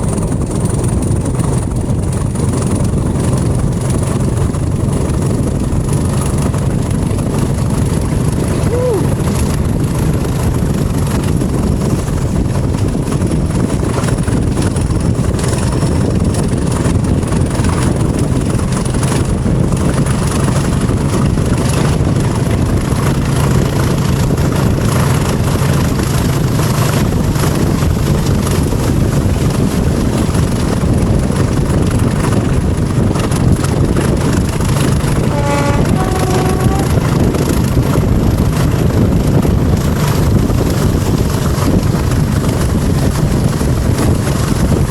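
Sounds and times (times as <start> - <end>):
diesel locomotive engine: 0.0 - 44.9
train coaches running on rails: 0.0 - 44.9
two-note train horn: 35.0 - 37.9.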